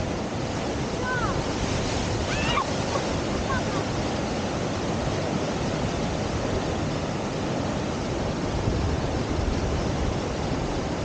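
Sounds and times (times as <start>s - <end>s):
whitewater rushing: 0.0s - 11.0s.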